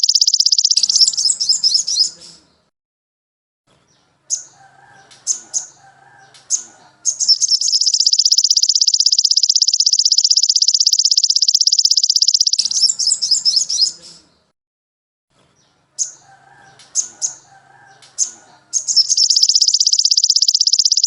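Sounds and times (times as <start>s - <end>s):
songbird chirping and trilling: 0.0s - 2.7s, 3.7s - 14.5s, 15.5s - 21.0s.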